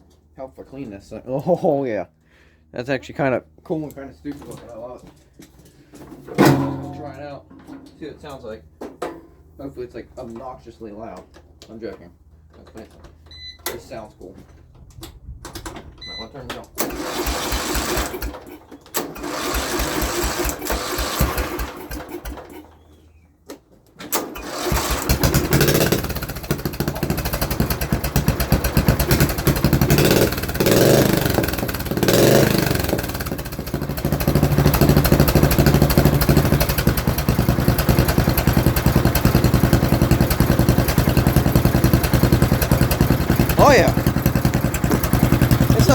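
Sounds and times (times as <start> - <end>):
lawnmower engine starting and revving: 16.8 - 23.0, 24.0 - 45.9.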